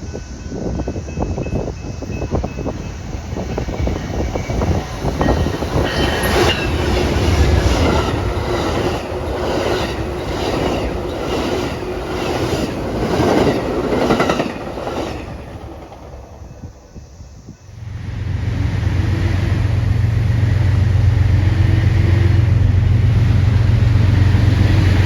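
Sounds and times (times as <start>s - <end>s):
train wheels clacking on rails: 0.0s - 17.0s
train rumble: 0.0s - 25.0s.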